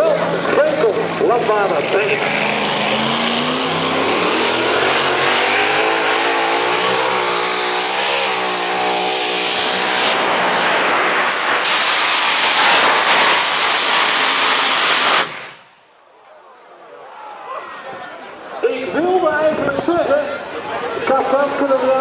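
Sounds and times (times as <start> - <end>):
loud dense rush of noise: 0.0 - 22.0
tractor engine running flat out: 11.6 - 15.6.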